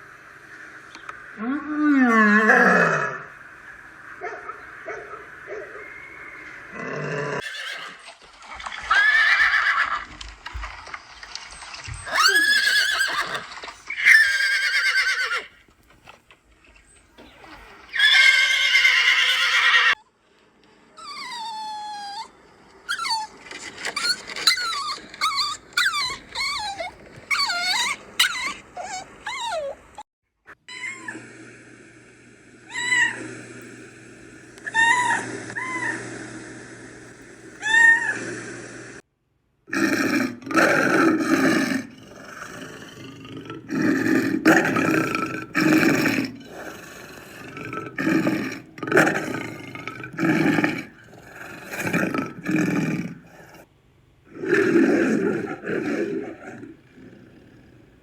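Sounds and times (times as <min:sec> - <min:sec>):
animal call: 0:00.9 - 0:08.1, 0:11.3 - 0:15.6, 0:21.0 - 0:30.0, 0:30.7 - 0:31.3, 0:32.6 - 0:33.8, 0:34.6 - 0:38.6, 0:39.7 - 0:53.6
horse whinnying: 0:06.7 - 0:10.2, 0:11.6 - 0:15.6, 0:17.4 - 0:20.0, 0:22.9 - 0:30.0, 0:39.7 - 0:52.8.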